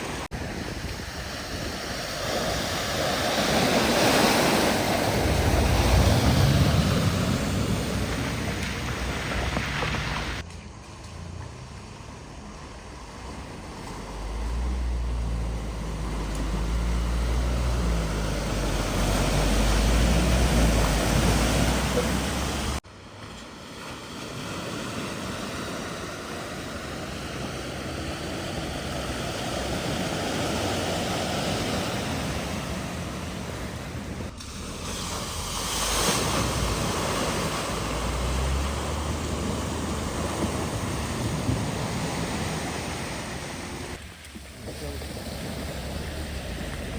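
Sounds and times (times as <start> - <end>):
rush of displaced water: 0.0 - 10.4, 12.6 - 46.9
low engine rumble: 4.4 - 23.1.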